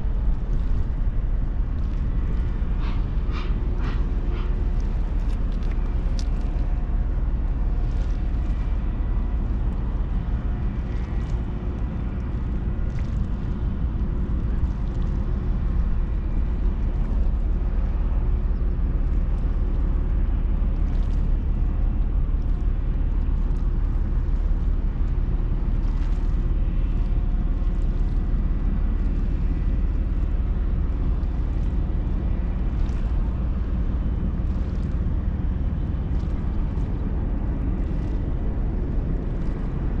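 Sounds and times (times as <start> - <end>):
ferry machinery rumbling: 0.0 - 17.0.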